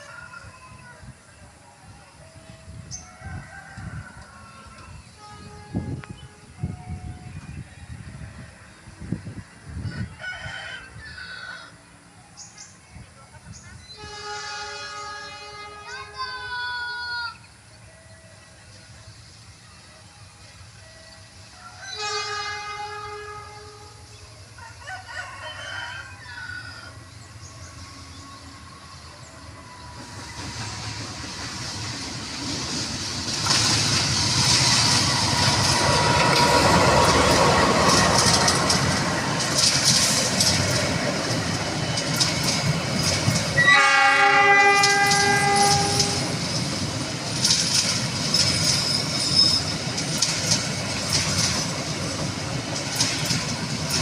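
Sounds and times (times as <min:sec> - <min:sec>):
train horn: 0:02.3 - 0:07.6, 0:13.8 - 0:16.6, 0:21.6 - 0:24.2, 0:43.4 - 0:46.5
train wheels clattering on rails: 0:29.9 - 0:43.9, 0:44.6 - 0:54.0.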